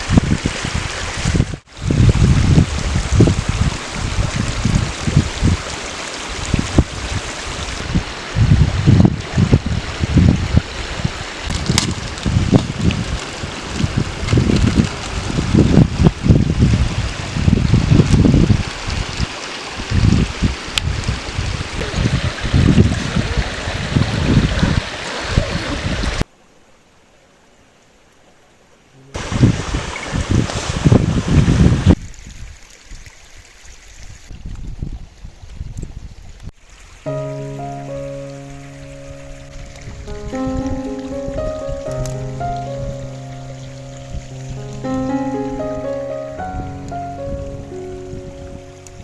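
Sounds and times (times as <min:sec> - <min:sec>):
wind buffeting microphone: 0:00.0 - 0:26.2, 0:29.2 - 0:33.0, 0:34.0 - 0:36.6, 0:39.4 - 0:49.0
running water rushing: 0:00.0 - 0:26.3, 0:29.0 - 0:34.3, 0:36.6 - 0:49.0.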